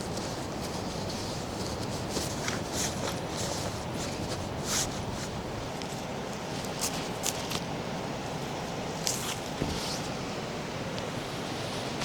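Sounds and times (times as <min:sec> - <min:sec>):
rustling scuffs: 0:09.0 - 0:10.2.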